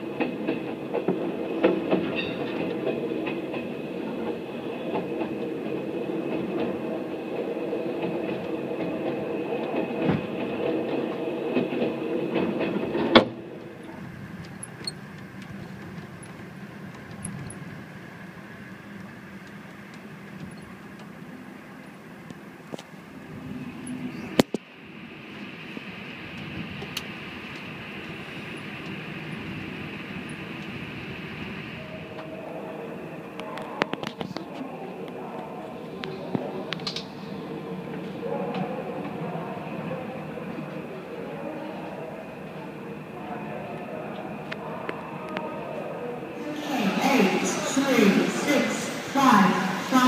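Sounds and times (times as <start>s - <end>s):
train rumble and rattle: 0.0s - 50.0s.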